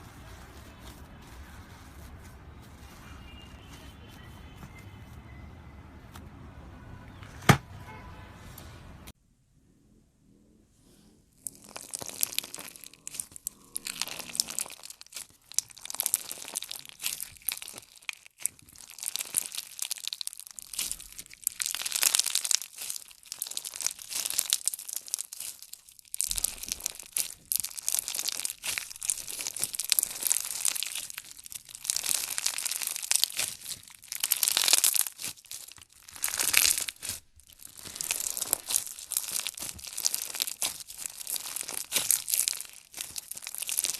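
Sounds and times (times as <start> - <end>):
slime squeezed by hand crackling: 11.4 - 43.9.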